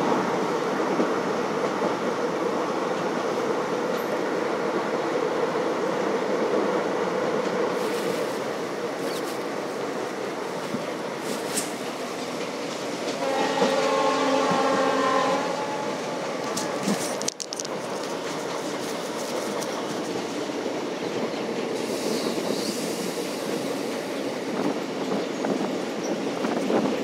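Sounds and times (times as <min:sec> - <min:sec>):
train wheels on rails: 0:00.0 - 0:27.0
locomotive horn: 0:13.2 - 0:16.3.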